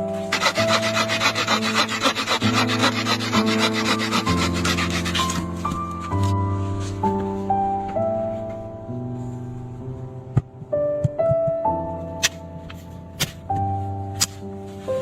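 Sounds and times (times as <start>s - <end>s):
soft piano music: 0.0s - 15.0s
fast scraping on wood: 0.2s - 5.8s.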